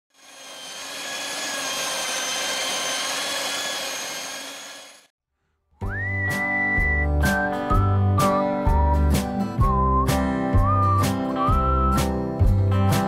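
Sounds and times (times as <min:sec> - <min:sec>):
electric hand mixer whine: 0:00.1 - 0:05.1.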